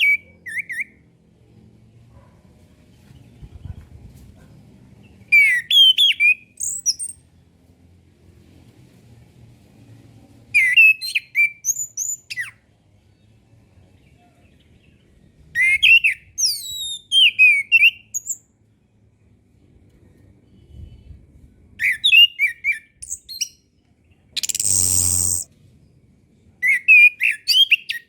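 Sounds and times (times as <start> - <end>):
thrush whistled song: 24.4 - 25.5.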